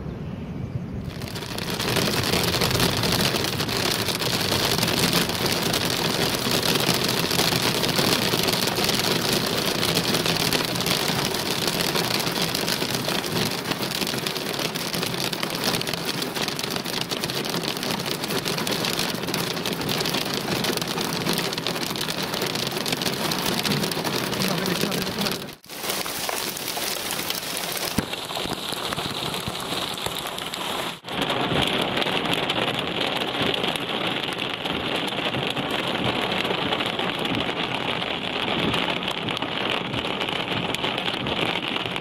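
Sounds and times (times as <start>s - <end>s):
heavy rain on hard surface: 1.0s - 42.0s.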